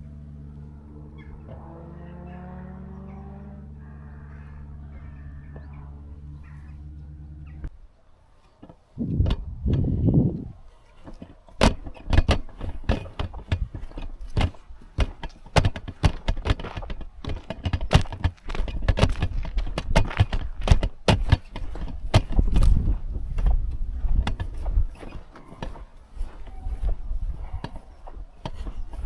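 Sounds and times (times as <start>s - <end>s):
low rumble: 9.0s - 10.6s.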